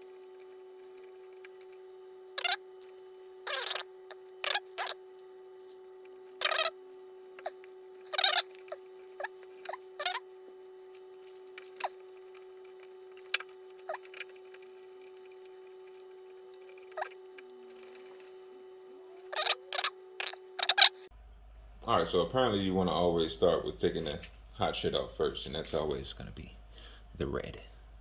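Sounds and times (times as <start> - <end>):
faint steady hum: 0.0 - 28.0
hands handling parts and tools: 10.9 - 18.6.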